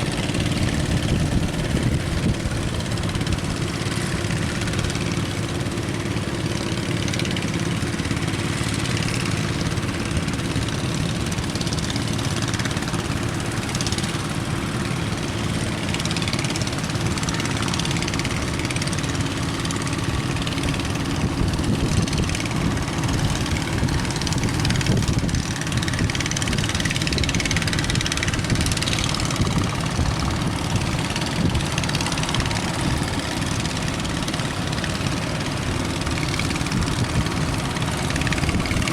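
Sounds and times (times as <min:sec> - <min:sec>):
strong wind: 0:00.0 - 0:07.2, 0:16.7 - 0:38.9
boat engine running: 0:00.0 - 0:38.9
waves at sea: 0:00.0 - 0:38.9.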